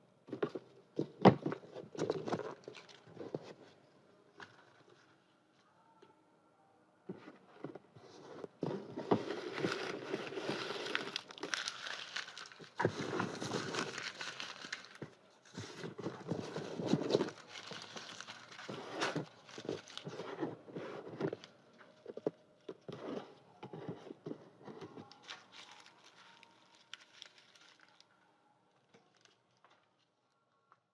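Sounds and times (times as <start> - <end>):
paper rustling and crinkling: 0.3 - 3.8, 7.1 - 28.1.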